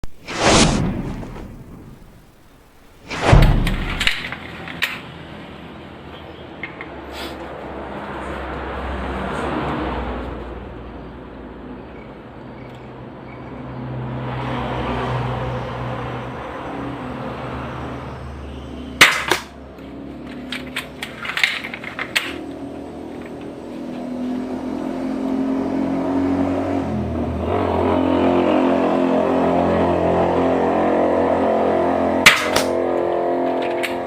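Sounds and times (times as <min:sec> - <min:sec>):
crossbow firing snap: 0:00.2 - 0:04.3, 0:32.3 - 0:32.8.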